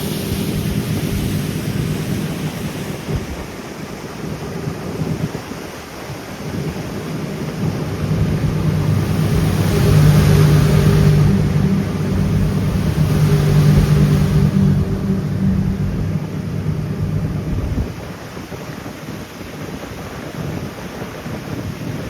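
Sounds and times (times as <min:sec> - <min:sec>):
boat engine running: 0:00.0 - 0:03.5, 0:06.5 - 0:18.7
wind and water rushing: 0:00.0 - 0:22.0.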